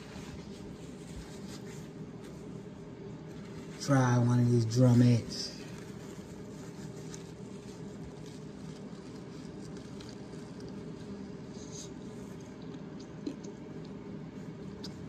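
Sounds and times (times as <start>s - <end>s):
steady low hum: 0.0s - 15.0s
person chewing crispy food: 5.8s - 15.0s.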